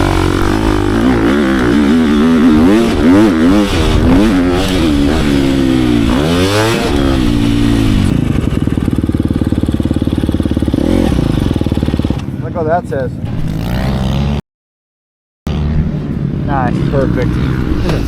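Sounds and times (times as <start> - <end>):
dirt bike engine revving and idling: 0.0 - 14.4.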